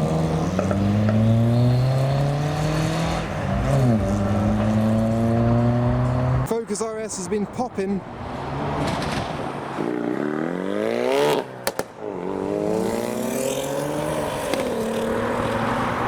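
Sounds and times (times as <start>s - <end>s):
car engine accelerating: 0.0s - 6.5s
exhaust pops: 11.6s - 12.0s.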